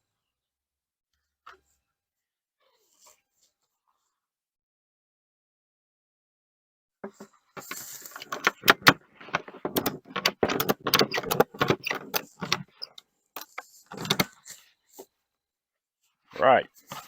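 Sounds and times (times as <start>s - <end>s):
clattering clicks and knocks: 7.1s - 14.4s.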